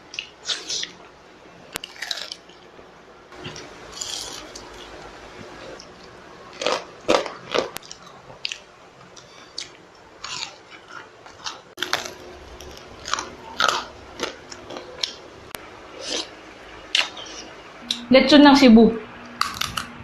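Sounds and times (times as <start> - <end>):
crunchy food chewing: 1.8 - 2.6, 3.4 - 5.0, 5.7 - 15.2, 19.3 - 20.0.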